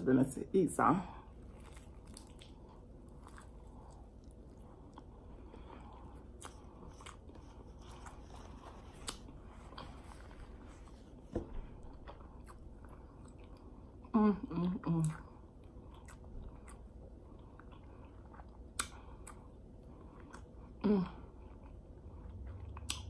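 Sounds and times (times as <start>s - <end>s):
soft chewing: 1.2s - 23.0s
crunching of fried wrapper: 1.5s - 4.6s.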